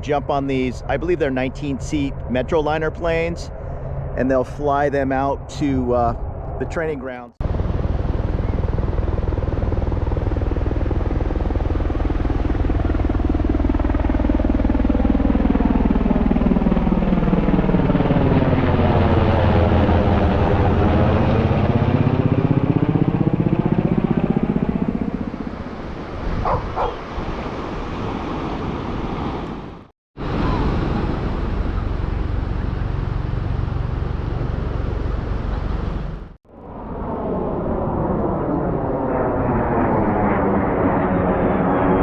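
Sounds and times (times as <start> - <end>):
aircraft passing overhead: 0.0 - 42.0
dog barking: 26.4 - 27.0.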